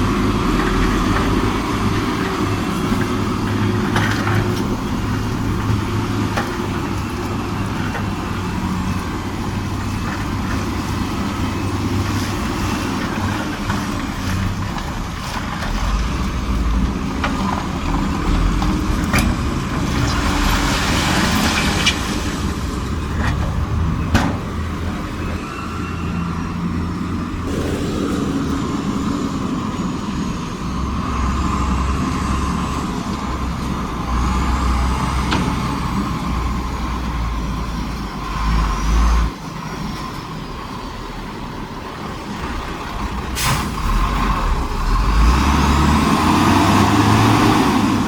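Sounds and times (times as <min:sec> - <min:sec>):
heavy diesel machinery running: 0:00.0 - 0:48.0
hissing rush: 0:27.4 - 0:31.6.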